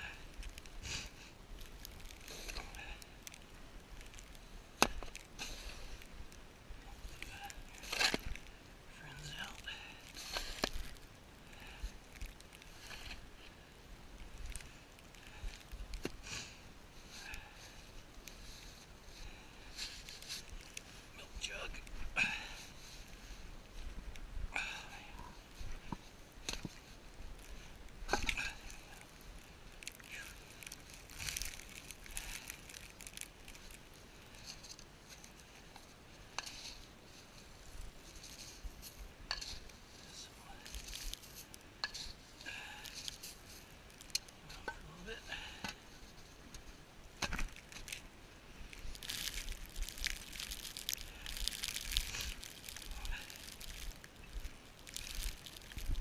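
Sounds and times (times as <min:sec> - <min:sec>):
footsteps crunching in snow: 0:48.8 - 0:56.0.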